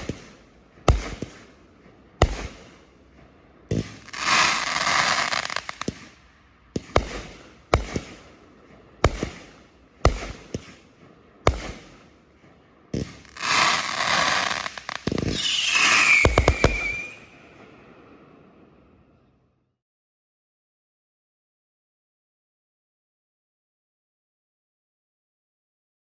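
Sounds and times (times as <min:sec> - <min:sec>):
firework crackling: 0:00.0 - 0:08.4, 0:09.0 - 0:12.2, 0:12.9 - 0:18.4
firework shots: 0:00.0 - 0:18.4
falling whistle: 0:15.3 - 0:17.3.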